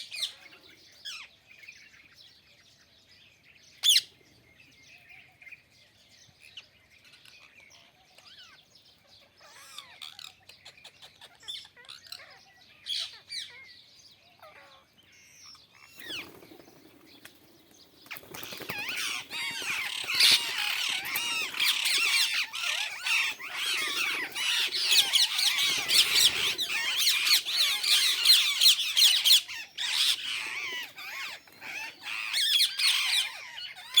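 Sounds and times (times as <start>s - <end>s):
parrots squawking and chirping: 3.8s - 4.1s, 9.2s - 13.8s, 14.4s - 16.4s, 18.1s - 34.0s.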